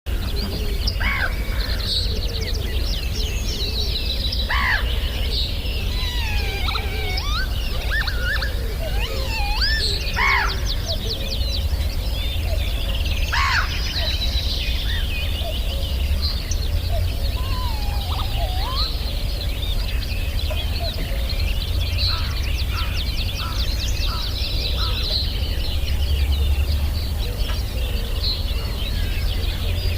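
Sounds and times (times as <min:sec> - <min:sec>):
birds chirping and twittering: 0:00.1 - 0:29.9
harsh bird call: 0:04.5 - 0:11.2, 0:16.9 - 0:19.3.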